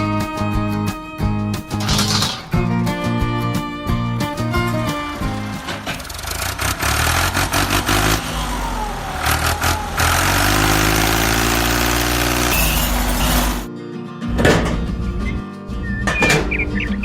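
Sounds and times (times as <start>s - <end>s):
engine running and revving: 4.4s - 13.7s.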